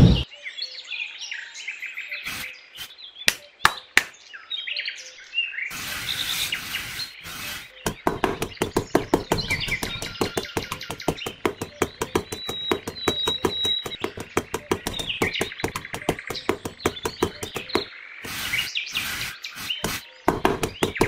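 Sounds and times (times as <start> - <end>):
songbirds chirping: 0.2 - 21.0
metal trowel scraping sand: 2.2 - 2.9, 5.7 - 10.4, 12.1 - 21.0
sharp taps: 7.8 - 21.0.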